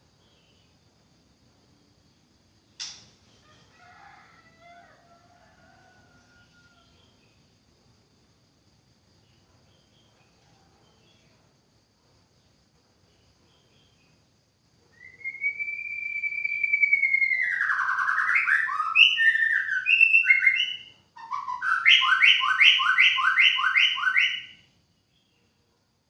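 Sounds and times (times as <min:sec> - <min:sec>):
bird singing whistles: 0:15.0 - 0:24.7.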